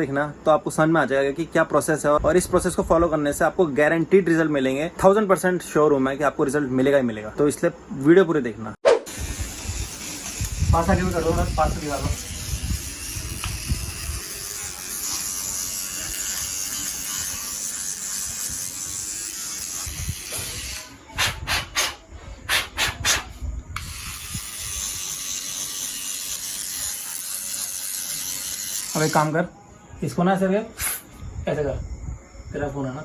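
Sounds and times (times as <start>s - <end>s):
small vacuum cleaner hissing: 9.1s - 29.4s.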